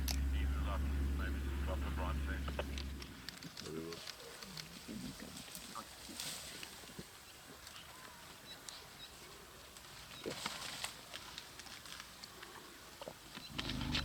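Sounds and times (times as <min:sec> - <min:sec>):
small clicks: 0:02.5 - 0:05.6, 0:10.2 - 0:14.0
brief rustle: 0:10.2 - 0:12.6, 0:13.3 - 0:14.0.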